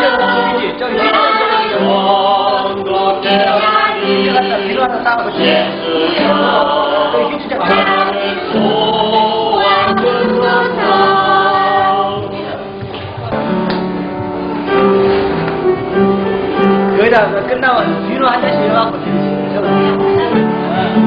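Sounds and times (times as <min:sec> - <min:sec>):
group singing a hymn: 0:00.0 - 0:12.8.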